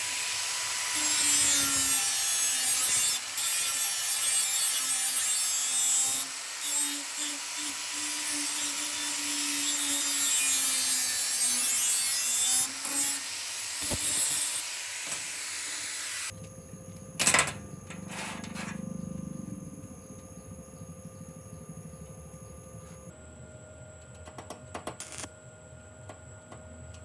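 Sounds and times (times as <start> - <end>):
handheld power tool whirring: 0.0 - 16.4.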